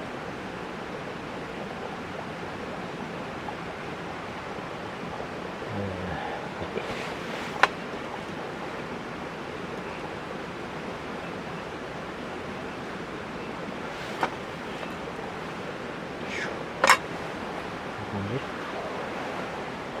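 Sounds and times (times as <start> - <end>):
cooking fire hissing: 5.7 - 8.7, 13.8 - 20.0.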